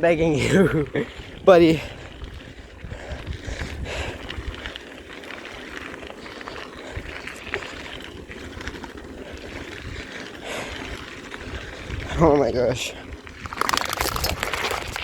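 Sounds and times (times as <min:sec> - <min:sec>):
bicycle road rumble: 0:00.0 - 0:15.0
wind on microphone: 0:01.2 - 0:04.7.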